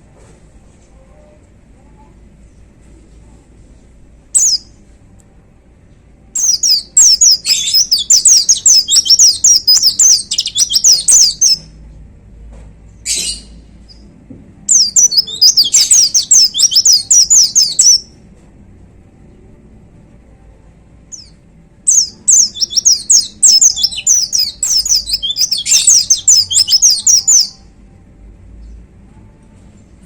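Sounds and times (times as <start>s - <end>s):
bird chirping song: 4.3s - 4.8s, 6.4s - 11.8s, 14.7s - 18.1s, 21.1s - 27.6s.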